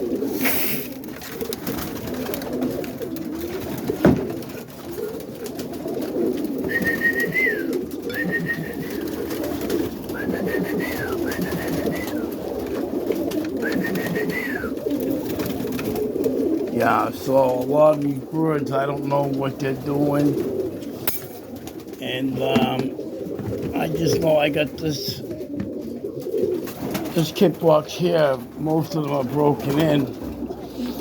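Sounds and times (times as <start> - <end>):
pigeons cooing: 0.0 - 31.0.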